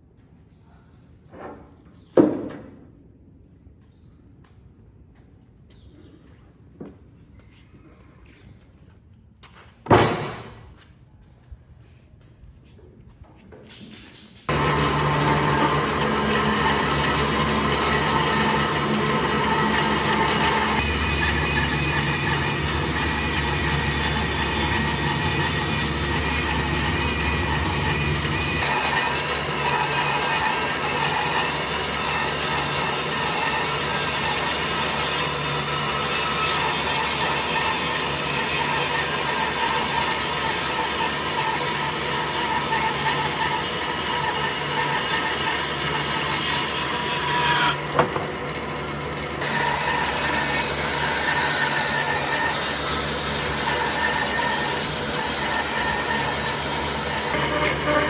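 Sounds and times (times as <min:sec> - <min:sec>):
power tool cutting wood: 0:14.5 - 0:58.0.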